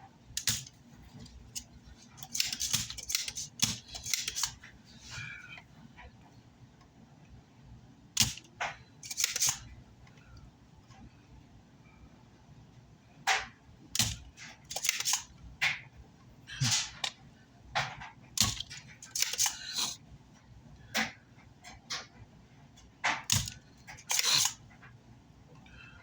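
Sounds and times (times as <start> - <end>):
hand tools scraping circuit board: 18.9 - 20.0, 23.3 - 24.6.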